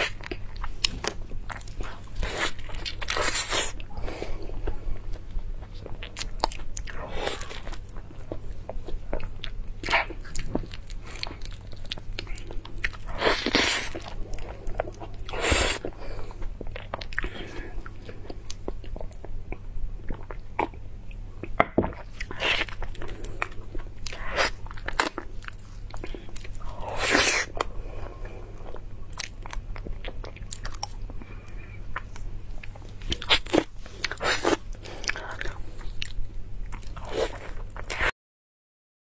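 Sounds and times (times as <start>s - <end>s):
person biting and chewing: 9.1s - 16.0s, 32.0s - 38.1s.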